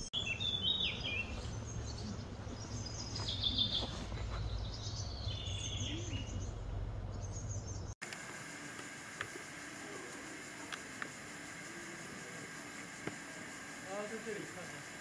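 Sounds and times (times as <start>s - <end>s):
low outdoor rumble: 0.0s - 8.0s
small birds chirping: 0.0s - 8.0s.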